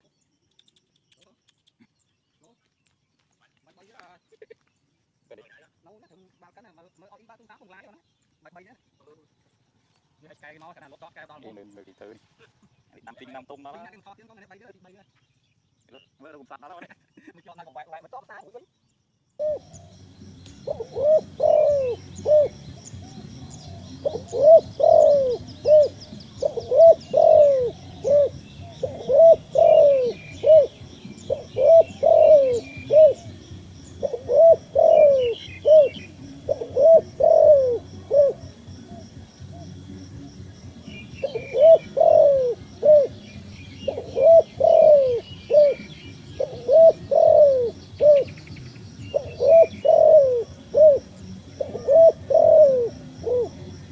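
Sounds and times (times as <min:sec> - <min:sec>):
dove cooing: 0:19.4 - 0:53.9
high bird chirping: 0:19.4 - 0:53.9.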